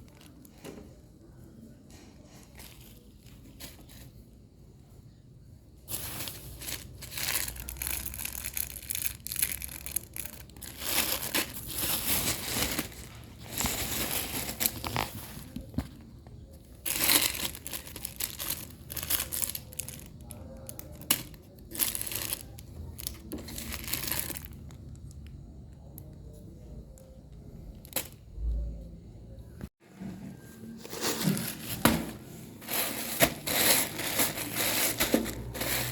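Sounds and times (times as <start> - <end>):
packaging tearing and crinkling: 6.0 - 15.6, 16.8 - 25.0.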